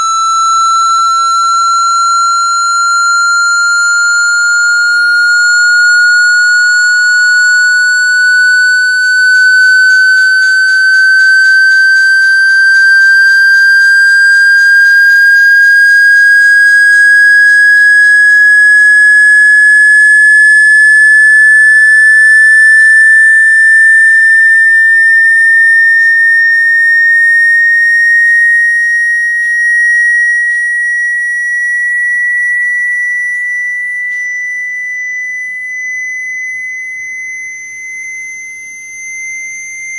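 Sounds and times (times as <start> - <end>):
rising electronic tone: 0.0 - 27.8.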